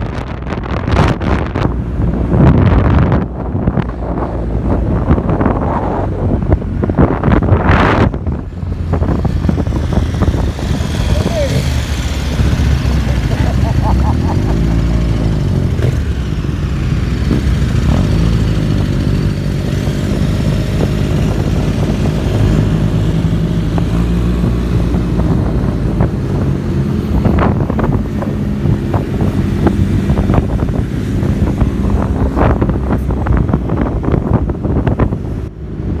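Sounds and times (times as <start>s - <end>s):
motorcycle engine running: 7.2s - 35.1s.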